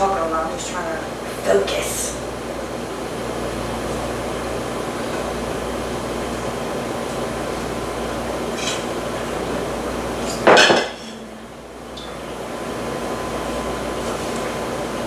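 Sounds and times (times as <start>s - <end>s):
fan whirring: 0.0s - 15.0s.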